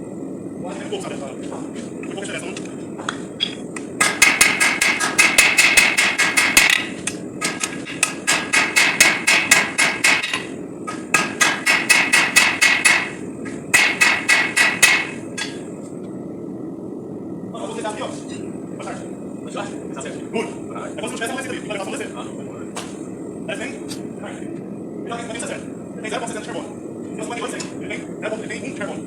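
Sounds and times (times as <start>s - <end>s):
hammer striking steel on anvil: 4.0s - 15.6s.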